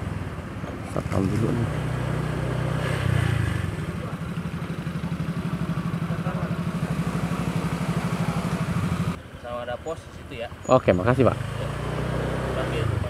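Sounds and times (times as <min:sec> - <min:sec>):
small motorcycle engine idling: 0:00.0 - 0:13.0.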